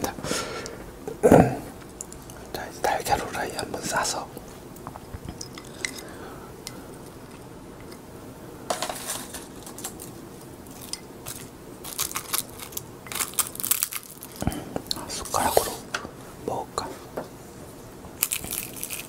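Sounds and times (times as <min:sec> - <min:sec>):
crisp seaweed sheets crackling: 0:09.2 - 0:15.4, 0:18.2 - 0:19.0.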